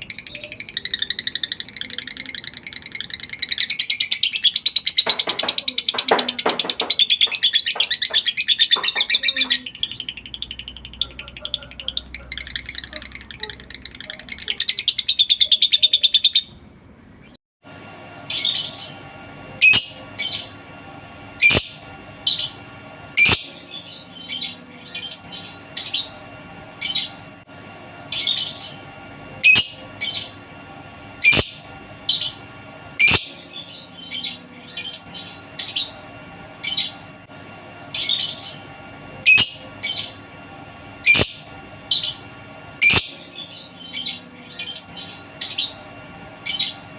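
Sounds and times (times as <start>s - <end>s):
lovebird chattering and chirping: 0.0s - 16.5s, 21.4s - 22.6s, 39.3s - 40.2s, 41.0s - 45.8s.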